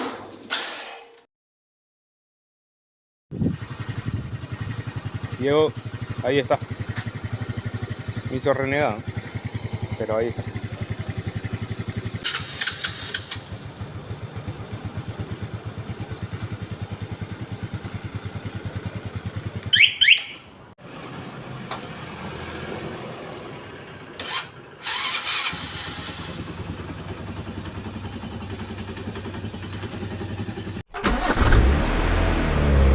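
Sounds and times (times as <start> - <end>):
motorcycle engine idling: 3.4 - 20.6, 24.6 - 30.8.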